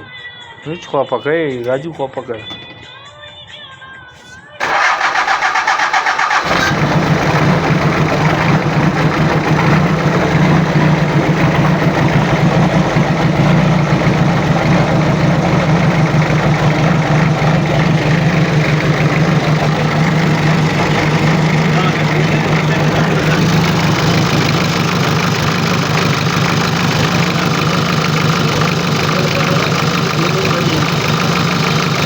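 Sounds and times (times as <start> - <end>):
diesel engine starting and idling: 4.6 - 32.0.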